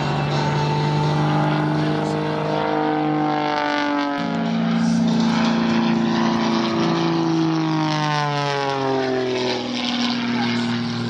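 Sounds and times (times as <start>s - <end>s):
music over loudspeakers: 0.0s - 3.1s
propeller aircraft engine passing: 0.0s - 11.0s.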